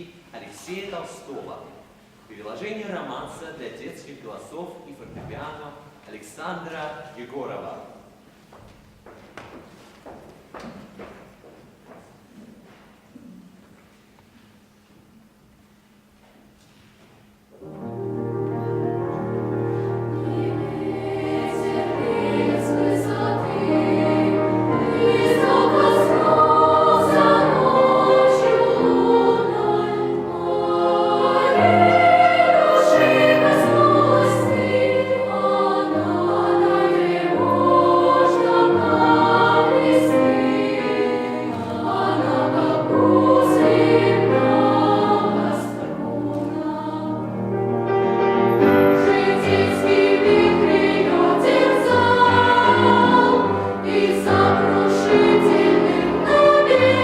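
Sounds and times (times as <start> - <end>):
piano accompaniment: 17.5 - 57.0
children's choir singing: 17.7 - 57.0.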